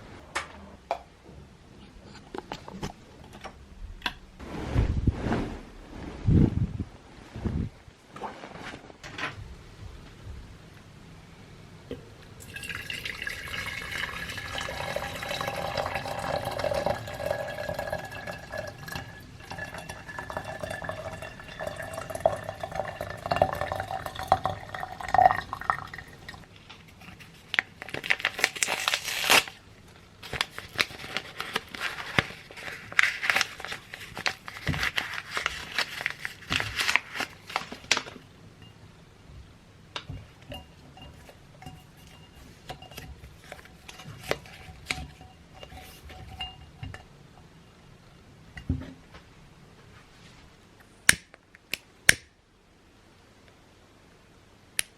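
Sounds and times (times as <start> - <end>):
water pouring into a container: 12.4 - 26.4.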